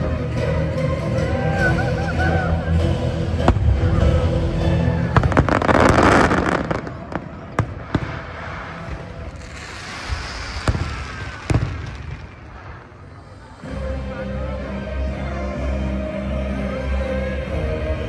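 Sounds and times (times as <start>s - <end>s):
firework bangs: 5.1s - 12.9s
firework rushing hiss: 5.3s - 13.4s.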